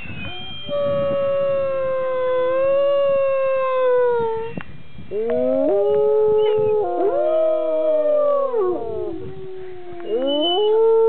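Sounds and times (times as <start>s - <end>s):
person howling: 0.4s - 4.4s, 5.2s - 11.0s
dog howling: 5.1s - 11.0s.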